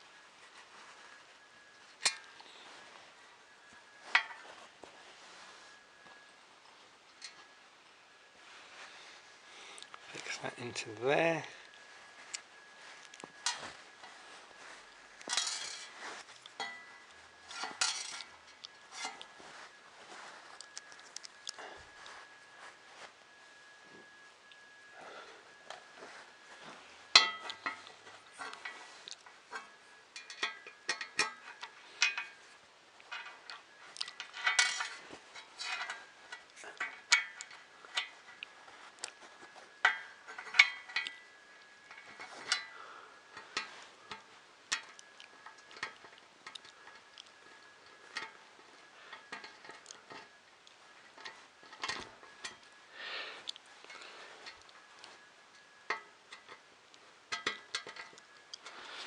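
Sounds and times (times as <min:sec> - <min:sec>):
metal screws clicking and tapping: 0:28.4 - 0:32.4, 0:57.3 - 0:58.7.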